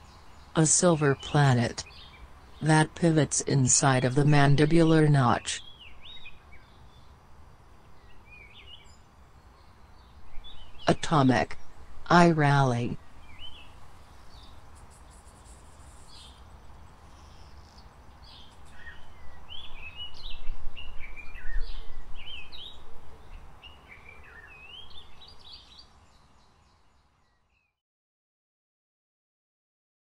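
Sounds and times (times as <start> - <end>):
birds chirping and calling: 9.6 - 25.9.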